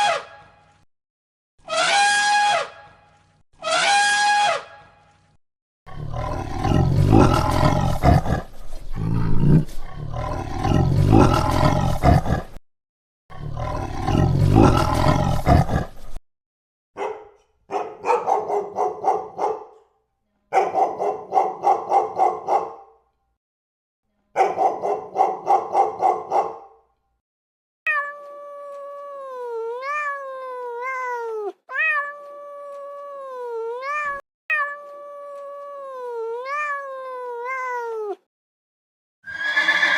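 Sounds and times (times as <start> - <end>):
big cat roaring: 5.9 - 12.6, 13.3 - 16.2
cat meowing: 27.9 - 38.3.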